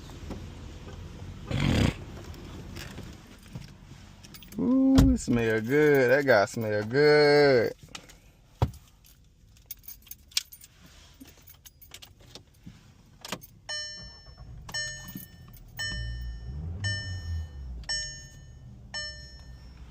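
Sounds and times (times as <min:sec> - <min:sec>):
car warning chime dinging: 0:13.4 - 0:19.9.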